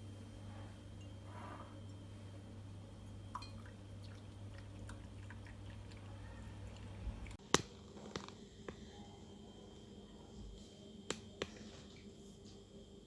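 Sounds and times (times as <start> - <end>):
faint clicks and taps: 7.4 - 12.6
steady low hum: 7.4 - 13.0.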